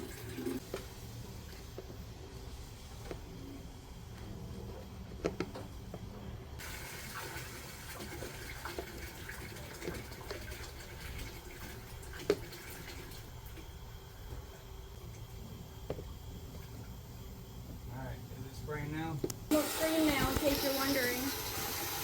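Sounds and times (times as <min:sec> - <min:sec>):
water rushing into a tank: 0:00.0 - 0:00.6, 0:06.6 - 0:13.7, 0:19.5 - 0:22.0
high hiss of water: 0:06.6 - 0:08.5, 0:19.5 - 0:22.0.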